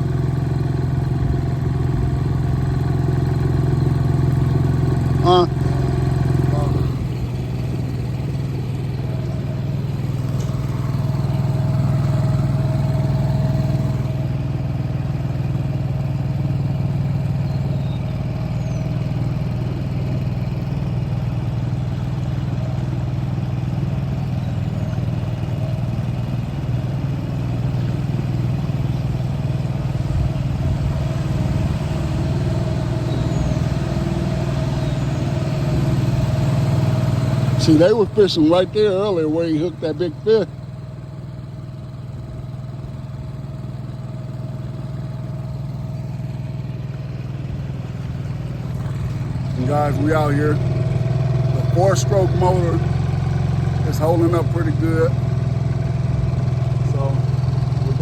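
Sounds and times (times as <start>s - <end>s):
outboard motor humming: 0.0s - 58.0s.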